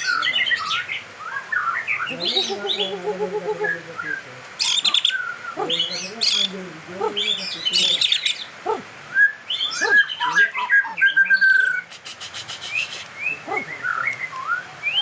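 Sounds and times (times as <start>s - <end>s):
bird singing whistles and rattles: 11.4s - 15.0s.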